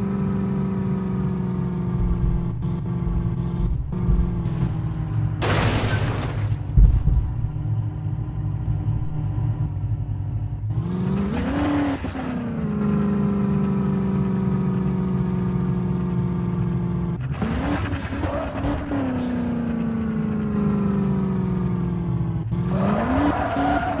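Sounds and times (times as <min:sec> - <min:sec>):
racing car engines running hard: 0:00.0 - 0:24.0.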